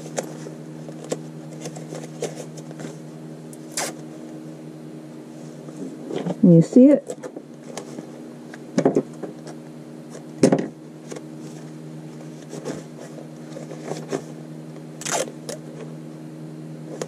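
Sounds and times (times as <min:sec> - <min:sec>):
pages rustling: 0:00.0 - 0:03.1, 0:11.0 - 0:14.4
tape pulled from roll: 0:03.6 - 0:04.0, 0:15.0 - 0:15.4.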